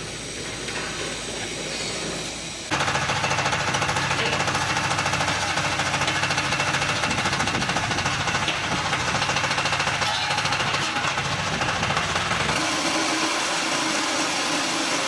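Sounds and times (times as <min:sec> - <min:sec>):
block machine vibrator rattling: 0:02.7 - 0:13.5.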